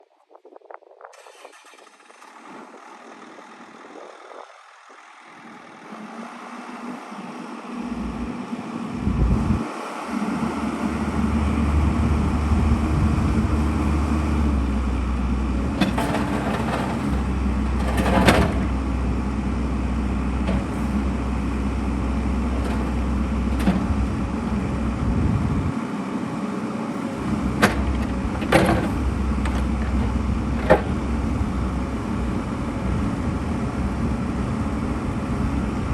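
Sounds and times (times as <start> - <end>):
excavator diesel engine running: 1.2 - 35.9
sharp knocks and clanks: 27.6 - 31.0.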